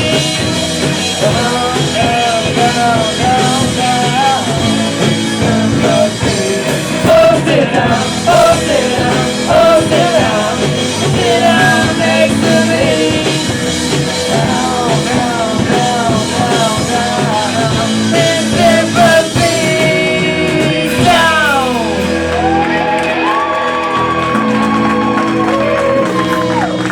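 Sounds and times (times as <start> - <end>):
live rock band playing: 0.0 - 26.9
person singing and shouting: 14.2 - 23.4.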